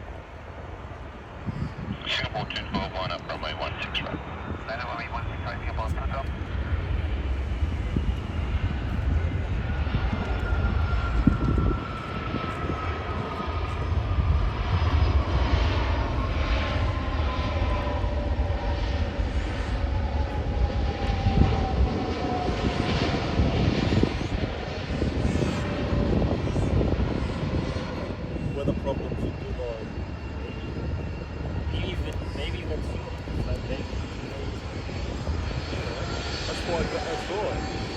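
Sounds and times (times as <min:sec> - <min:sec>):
jet engines rumbling and whining: 0:00.0 - 0:37.9.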